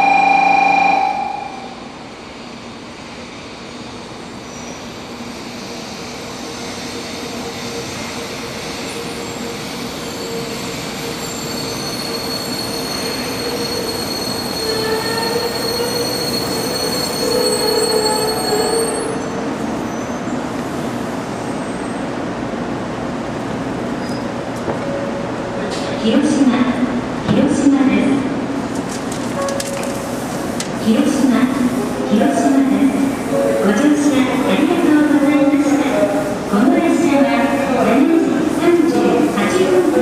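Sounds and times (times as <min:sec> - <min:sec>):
train running noise: 0:00.0 - 0:40.0
high-pitched brake squealing: 0:09.9 - 0:20.3.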